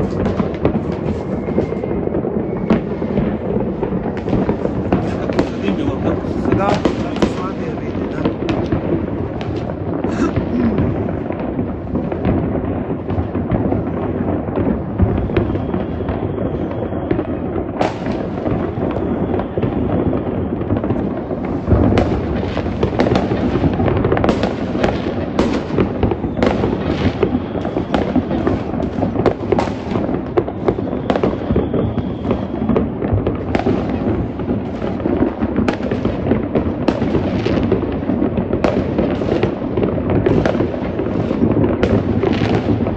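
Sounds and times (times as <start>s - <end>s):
fireworks crackling: 0.0s - 42.9s
sharp single firework bangs: 0.0s - 42.9s.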